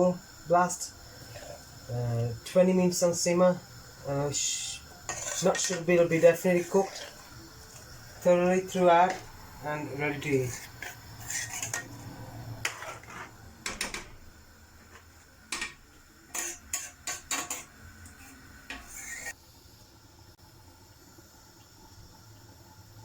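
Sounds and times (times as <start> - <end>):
metal kitchenware clinking on pot: 15.5 - 17.7.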